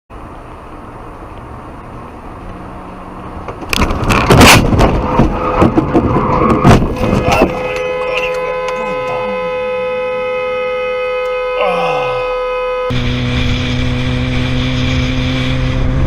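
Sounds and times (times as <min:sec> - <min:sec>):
car road and engine noise: 0:00.1 - 0:16.0
car crash impact: 0:03.5 - 0:07.7
banging cracking and scraping: 0:03.5 - 0:07.9.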